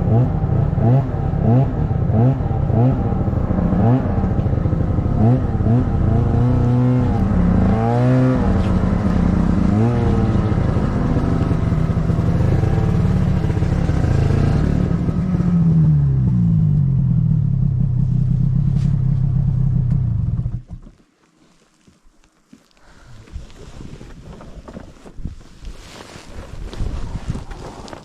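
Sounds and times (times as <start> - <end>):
snowmobile engine running: 0.0 - 20.7.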